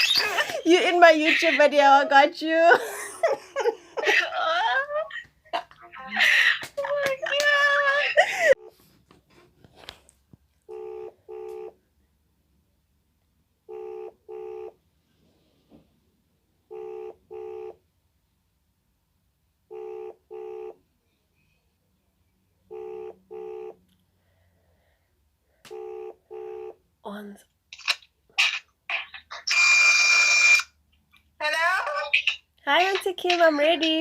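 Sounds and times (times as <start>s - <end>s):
phone call ringing tone: 10.7s - 11.8s, 13.7s - 14.8s, 16.7s - 17.8s, 19.7s - 20.8s, 22.7s - 23.8s, 25.7s - 26.8s.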